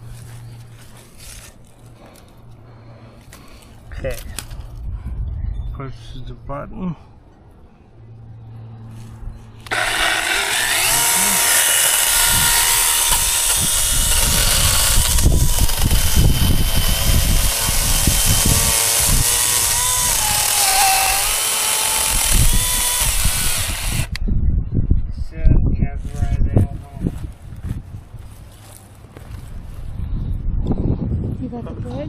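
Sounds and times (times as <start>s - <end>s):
electric chainsaw cutting brush: 9.6s - 24.2s.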